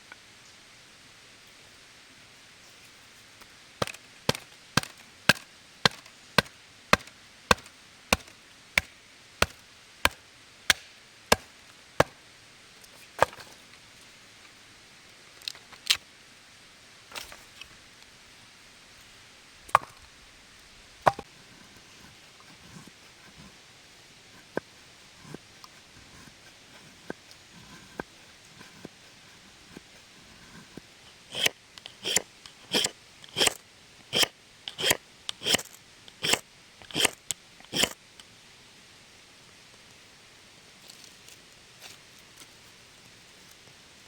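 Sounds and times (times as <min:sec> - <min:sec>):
blade chopping wood: 0:03.8 - 0:12.2, 0:13.2 - 0:13.6, 0:21.1 - 0:21.3, 0:31.3 - 0:33.6, 0:34.2 - 0:38.0.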